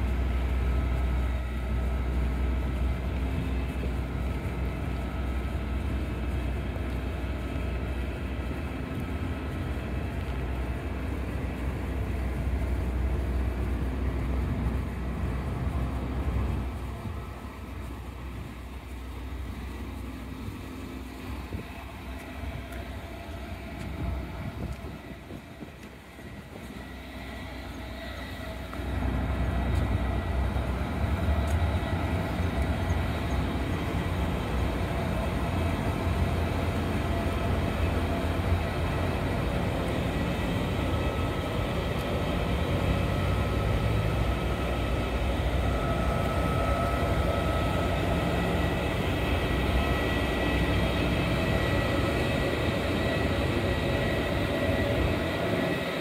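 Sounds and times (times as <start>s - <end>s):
electric train rumbling: 0.0s - 56.0s
street noise: 0.0s - 56.0s.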